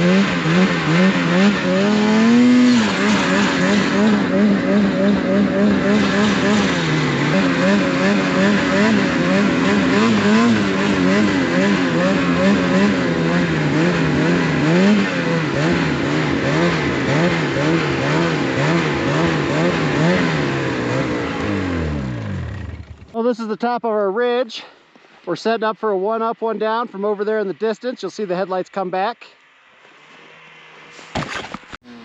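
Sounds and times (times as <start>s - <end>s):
snowmobile engine revving: 0.0s - 23.3s, 30.0s - 32.0s.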